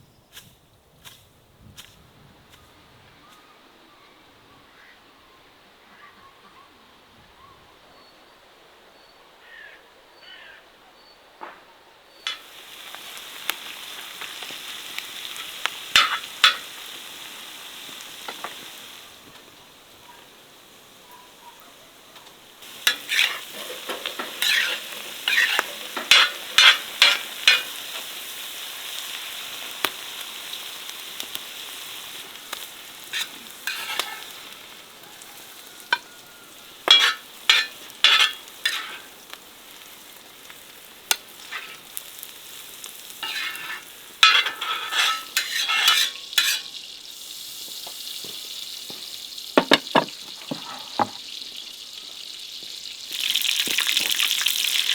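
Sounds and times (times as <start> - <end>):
food sizzling in a pot: 12.2 - 54.9
scraping stirring strokes: 22.6 - 27.8, 33.0 - 34.9, 35.8 - 39.1, 41.1 - 42.0, 43.2 - 46.8.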